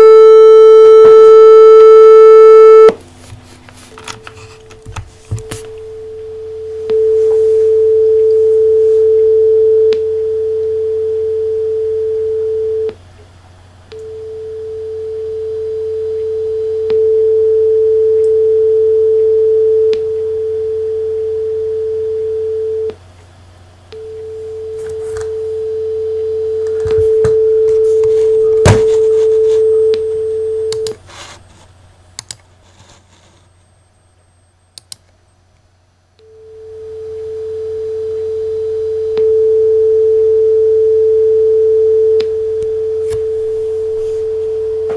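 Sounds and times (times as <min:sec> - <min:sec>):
sine test tone: 0:00.0 - 0:03.0, 0:05.3 - 0:13.0, 0:13.9 - 0:23.0, 0:23.9 - 0:31.0, 0:33.4 - 0:35.4, 0:36.2 - 0:44.9
low hum: 0:05.3 - 0:13.0, 0:13.9 - 0:23.0, 0:23.8 - 0:31.0, 0:36.2 - 0:44.9
clicks: 0:30.7 - 0:31.0, 0:34.8 - 0:35.2.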